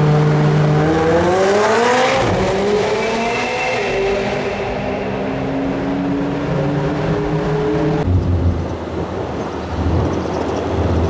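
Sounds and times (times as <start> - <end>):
car engine droning: 0.0 - 11.0
wind noise: 4.4 - 11.0.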